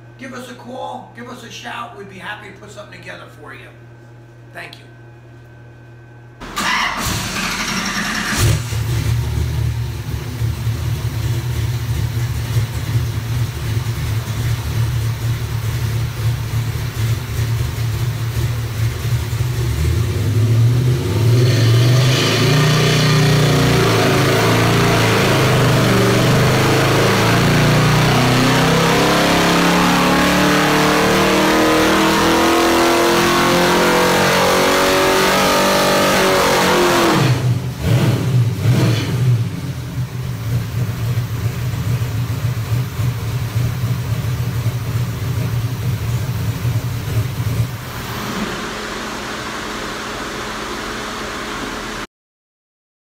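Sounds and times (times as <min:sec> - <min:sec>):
engine idling: 0:06.4 - 0:20.5, 0:39.5 - 0:52.0
engine revving on a dyno: 0:06.4 - 0:52.1.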